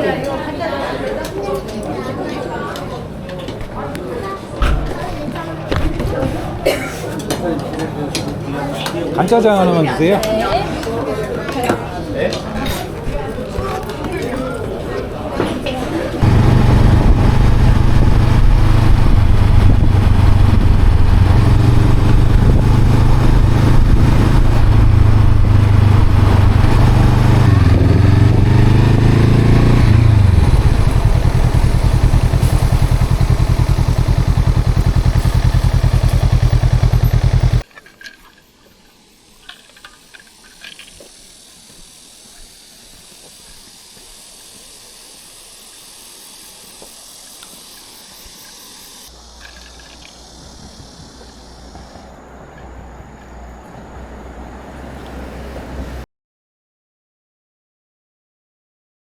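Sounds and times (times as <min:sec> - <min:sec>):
motorcycle engine running: 0:16.2 - 0:37.6.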